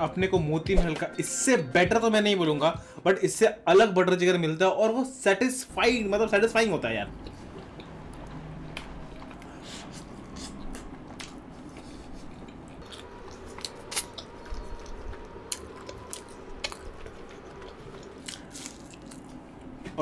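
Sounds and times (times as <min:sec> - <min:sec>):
person chewing: 0:07.1 - 0:19.9.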